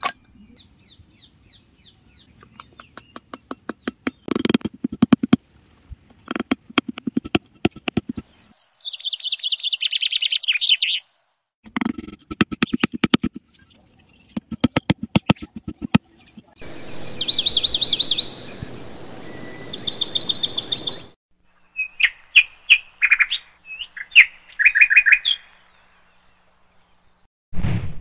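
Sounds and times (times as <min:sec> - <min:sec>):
birds chirping: 0:00.0 - 0:11.1, 0:11.7 - 0:21.2
hammer tapping wooden stake: 0:02.4 - 0:05.4, 0:06.2 - 0:08.3, 0:11.7 - 0:13.4, 0:14.4 - 0:16.0.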